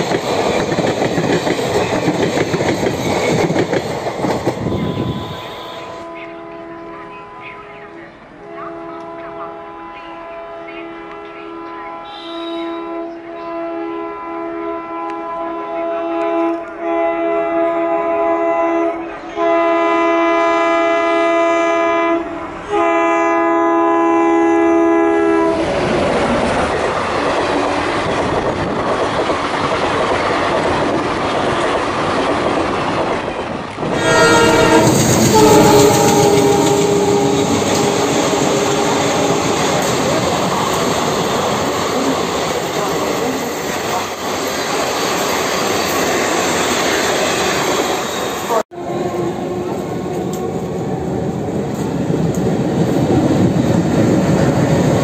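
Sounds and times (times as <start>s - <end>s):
train rumble and wheel clatter: 0.0s - 55.0s
locomotive horn blasts: 4.7s - 25.6s, 33.9s - 40.1s.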